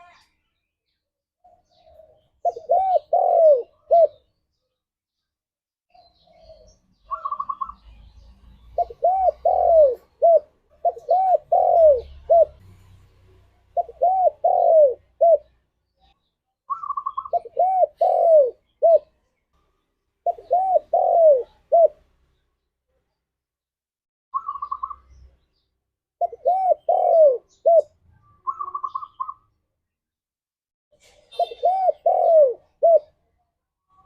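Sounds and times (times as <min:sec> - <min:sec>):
dove cooing: 0:01.6 - 0:04.3, 0:06.2 - 0:08.0, 0:08.8 - 0:12.6, 0:13.7 - 0:15.6, 0:16.7 - 0:19.1, 0:20.2 - 0:22.0, 0:26.2 - 0:29.4, 0:31.3 - 0:33.1.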